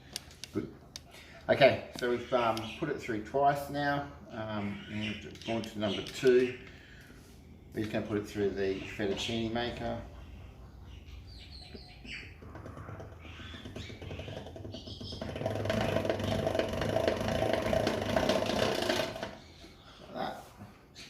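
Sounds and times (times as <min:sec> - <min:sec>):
pasta machine rollers rattling: 0:13.6 - 0:19.6.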